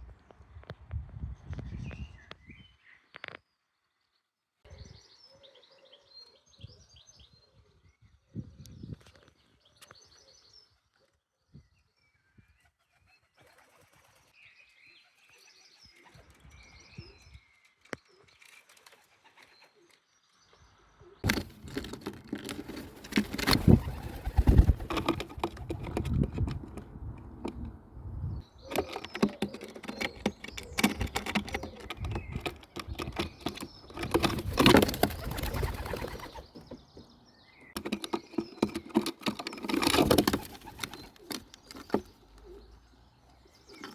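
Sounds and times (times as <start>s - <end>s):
wing flaps: 21.2s - 27.8s, 28.6s - 36.8s, 37.8s - 42.2s
pigeons cooing: 21.2s - 27.9s, 28.5s - 37.1s, 37.8s - 43.9s.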